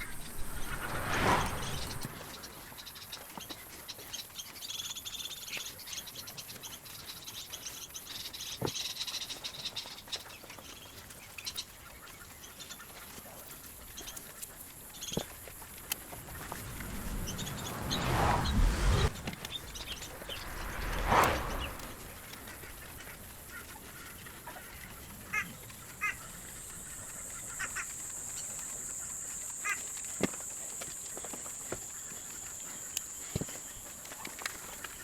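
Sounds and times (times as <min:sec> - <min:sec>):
birds chirping: 0:15.0 - 0:24.2.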